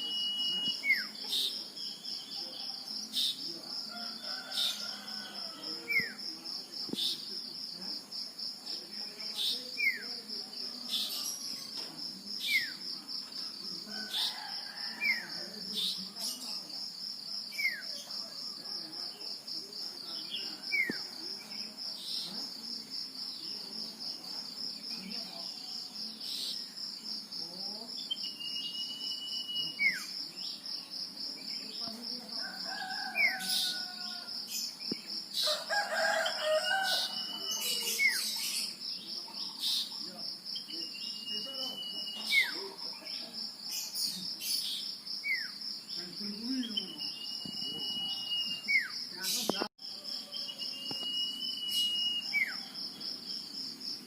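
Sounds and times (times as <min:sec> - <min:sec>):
bird whistling calls: 0:50.5 - 0:52.6.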